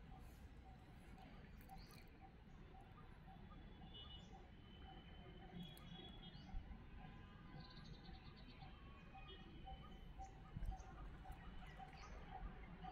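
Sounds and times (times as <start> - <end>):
faint birdsong chirps: 0.0 - 6.7.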